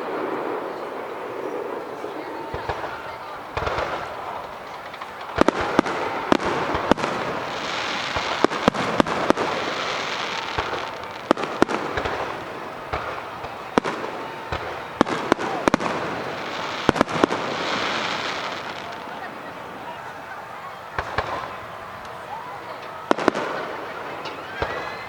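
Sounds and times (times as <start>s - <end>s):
firework shells bursting: 0.0s - 19.3s
continuous firework hiss: 0.0s - 25.0s.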